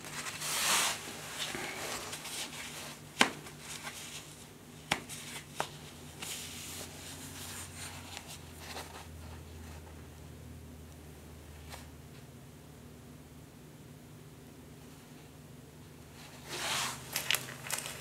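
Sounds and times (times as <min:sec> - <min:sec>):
rustling of materials: 0:00.0 - 0:10.1, 0:16.1 - 0:18.0
low steady hum: 0:00.0 - 0:18.0.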